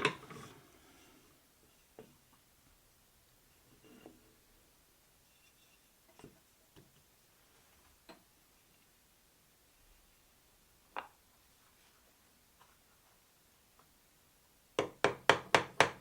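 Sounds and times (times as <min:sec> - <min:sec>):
hand tools and wood clicking: 0:00.0 - 0:02.5, 0:05.4 - 0:07.1, 0:14.8 - 0:16.0.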